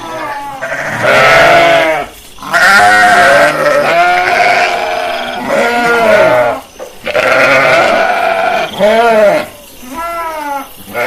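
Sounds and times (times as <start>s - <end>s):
sheep bleating: 0.0s - 11.0s.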